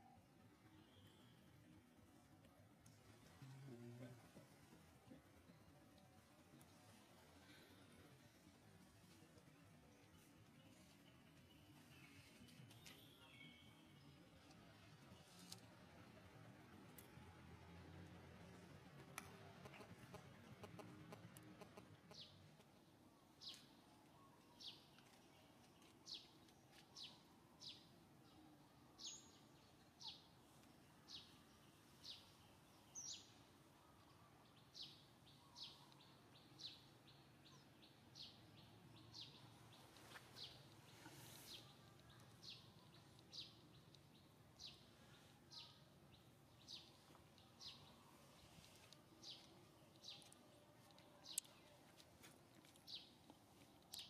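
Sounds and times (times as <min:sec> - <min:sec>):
faint bird chirps: 0:00.0 - 0:01.6.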